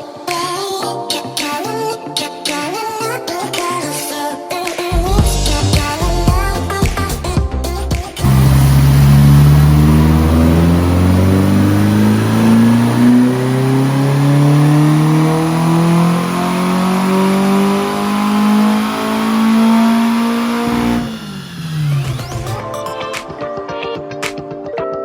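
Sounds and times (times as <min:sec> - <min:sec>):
car engine revving under load: 0:08.2 - 0:22.6.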